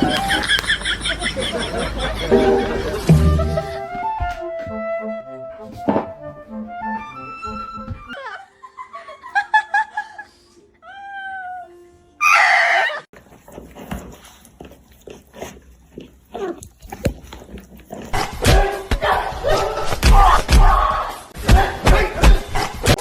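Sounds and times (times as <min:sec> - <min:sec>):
animal crying: 0:10.9 - 0:13.1.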